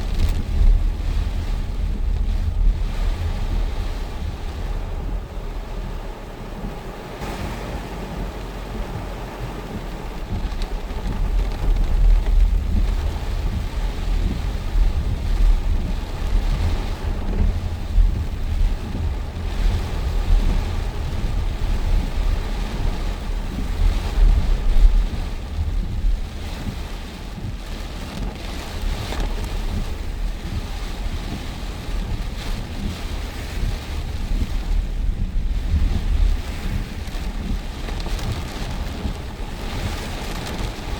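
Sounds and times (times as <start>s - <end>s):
wind buffeting microphone: 0.0s - 40.9s
heavy rain hissing: 3.0s - 11.4s.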